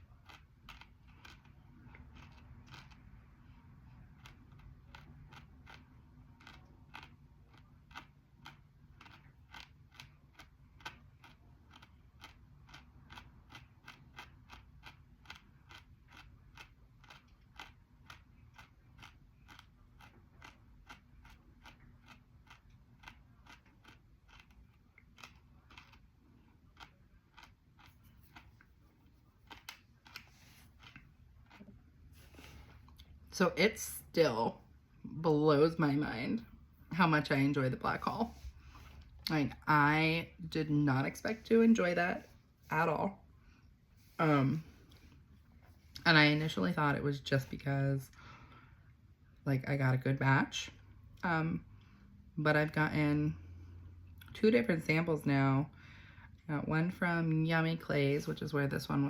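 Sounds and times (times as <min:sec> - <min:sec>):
chewing crunchy food: 0:00.0 - 0:33.3.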